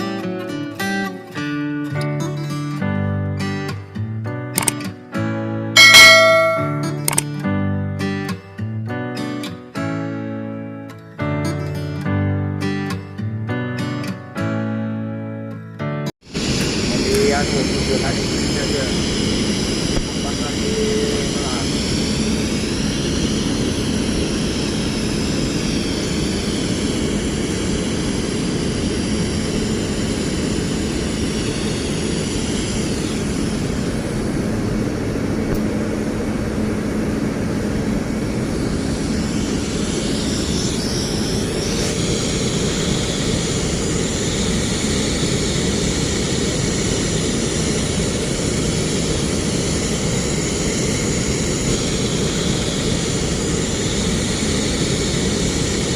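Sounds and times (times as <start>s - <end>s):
machinery humming: 16.3s - 55.9s.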